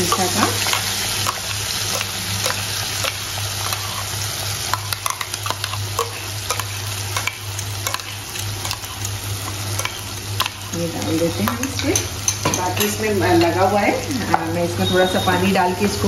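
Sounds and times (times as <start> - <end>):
paste sizzling in hot oil: 0.0 - 15.4
metal spoon clicking and scraping: 4.7 - 10.8.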